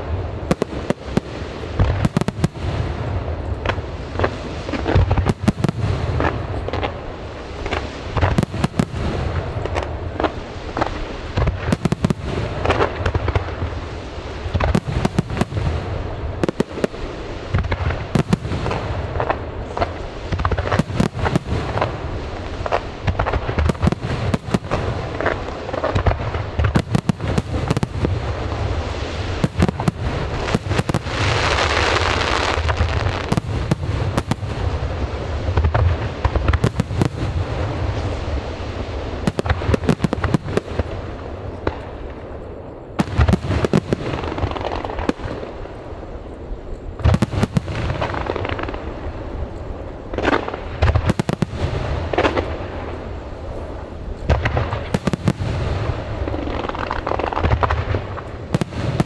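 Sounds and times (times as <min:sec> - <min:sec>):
fireworks booming: 0:00.0 - 0:59.0
fireworks crackling hiss: 0:00.0 - 0:59.0.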